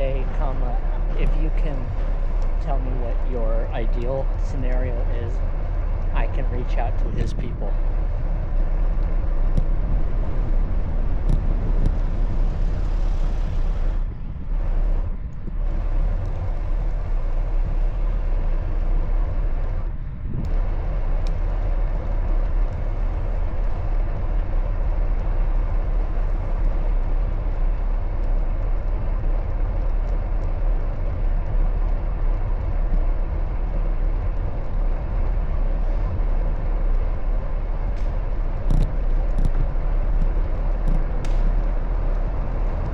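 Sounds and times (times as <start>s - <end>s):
road noise: 0.0s - 42.9s
rumbling wind: 0.0s - 42.9s.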